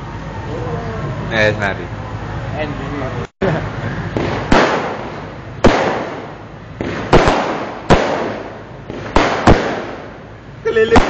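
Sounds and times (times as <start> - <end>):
fireworks bangs with rolling echo: 4.0 - 11.0.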